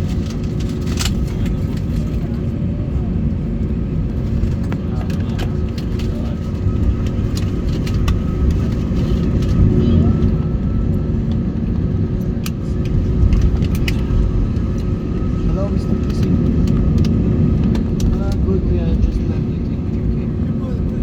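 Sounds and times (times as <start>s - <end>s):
vehicle rumble: 0.0s - 21.0s.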